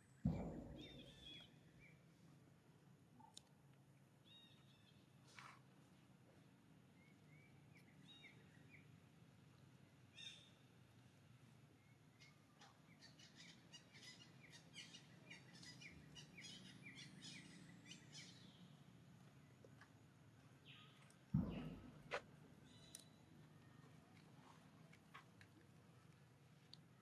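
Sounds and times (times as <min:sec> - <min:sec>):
low background noise: 0:00.0 - 0:27.0
faint bird chirping: 0:06.3 - 0:19.8, 0:20.5 - 0:21.9.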